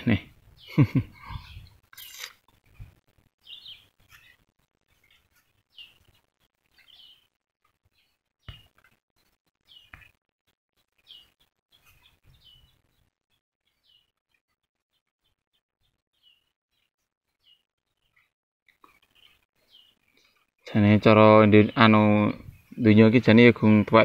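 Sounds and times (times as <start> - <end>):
faint bird chirps: 0.6 - 7.3, 11.0 - 14.2, 14.9 - 23.0.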